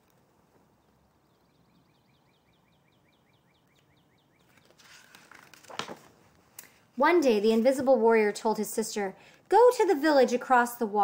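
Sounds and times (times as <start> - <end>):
faint bird chirping: 0.6 - 4.8
paper rustling: 4.4 - 6.8.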